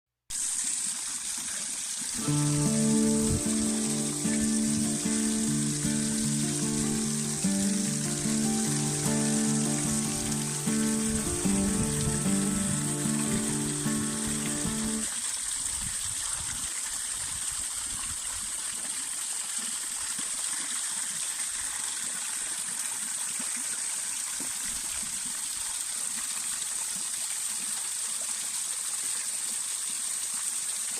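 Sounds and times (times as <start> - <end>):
small waterfall splashing: 0.3 - 30.9
music: 2.2 - 15.1.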